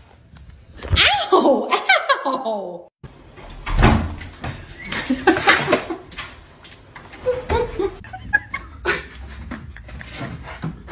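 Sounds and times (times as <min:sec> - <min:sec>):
person laughing: 0:01.1 - 0:02.9, 0:07.2 - 0:10.9.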